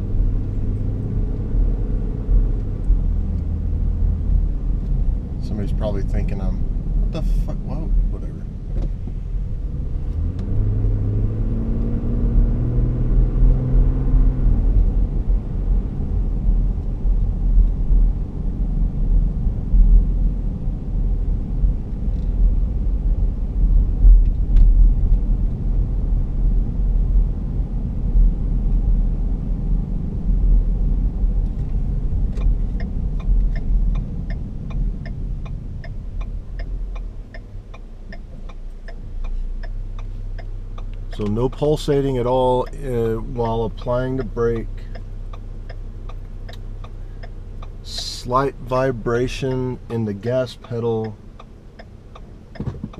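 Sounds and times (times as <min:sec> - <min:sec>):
car cabin engine rumble: 0:00.0 - 0:52.9
regular ticking: 0:32.2 - 0:52.9.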